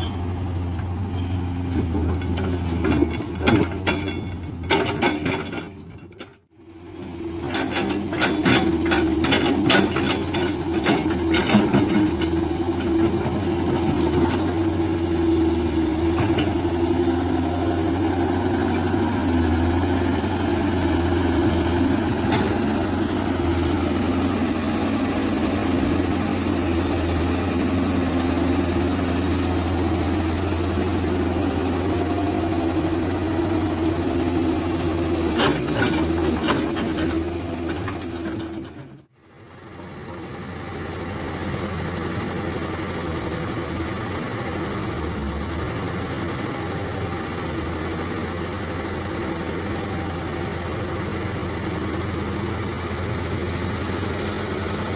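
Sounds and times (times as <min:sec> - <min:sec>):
truck diesel engine idling: 0:39.0 - 0:54.9.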